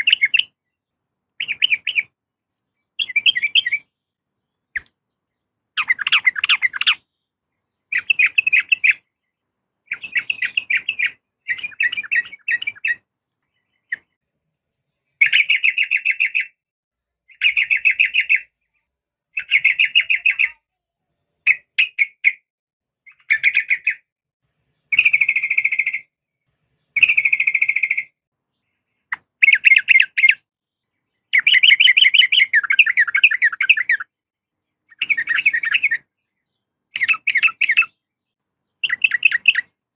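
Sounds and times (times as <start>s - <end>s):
bird chattering: 0.0s - 0.6s, 1.4s - 2.2s, 3.0s - 3.9s, 5.8s - 7.1s, 7.9s - 9.1s, 9.9s - 13.0s, 29.0s - 30.4s, 31.3s - 34.1s, 34.9s - 36.1s, 36.9s - 38.0s, 38.8s - 39.8s.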